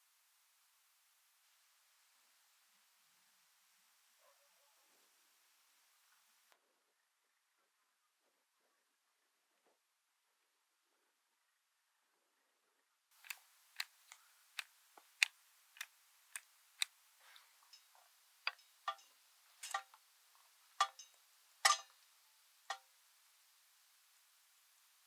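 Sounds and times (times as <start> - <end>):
wood fire crackling: 13.2 - 22.8.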